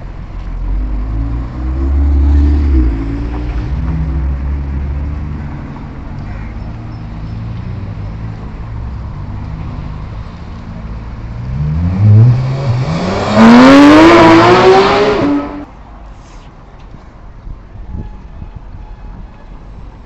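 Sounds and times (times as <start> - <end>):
car engine revving: 11.4 - 15.7.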